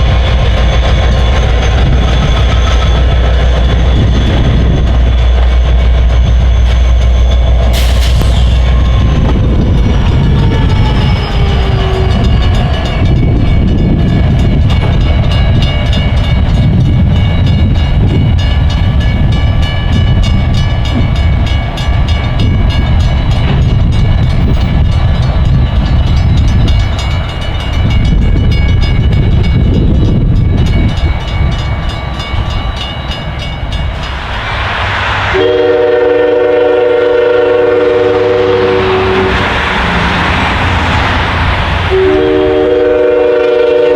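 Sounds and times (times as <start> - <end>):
freight train rumbling past: 0.0 - 43.9
high ringing tones: 0.6 - 34.4
train horn blast: 35.3 - 39.4, 41.8 - 43.9.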